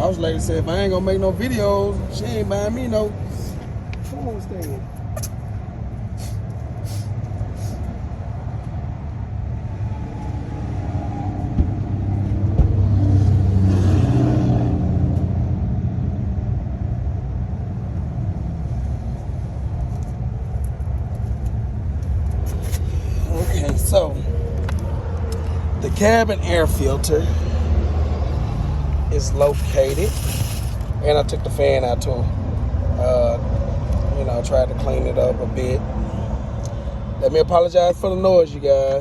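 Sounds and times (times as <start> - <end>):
road traffic rumble: 0.0 - 39.0
vehicle passing: 7.0 - 34.1.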